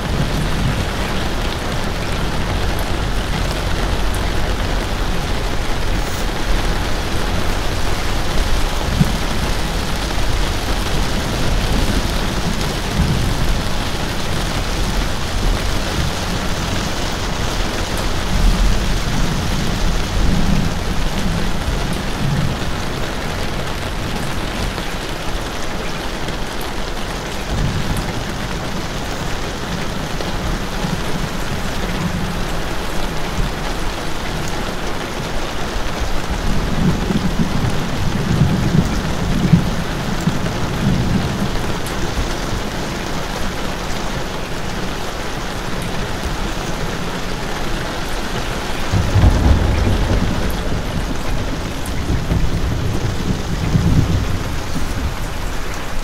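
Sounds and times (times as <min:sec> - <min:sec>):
low rumbles: 0:00.0 - 0:24.8, 0:47.9 - 0:56.0
heavy rain hissing: 0:00.0 - 0:56.0.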